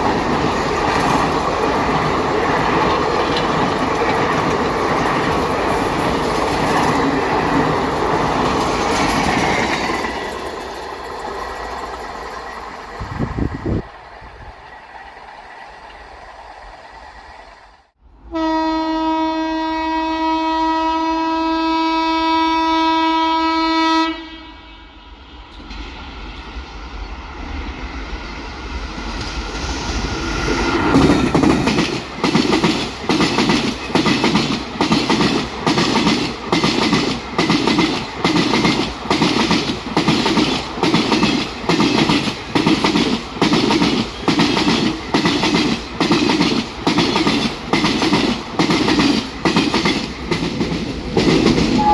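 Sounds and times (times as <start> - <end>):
train wheels clickety-clack: 0.0 - 17.8, 27.8 - 51.9
train horn long blast: 18.2 - 25.0, 51.7 - 51.9.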